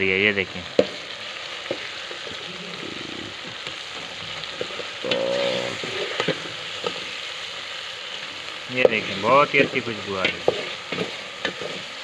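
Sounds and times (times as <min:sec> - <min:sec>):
meat sizzling in a pot: 0:00.0 - 0:12.0
spoon stirring in a pot: 0:08.8 - 0:12.0.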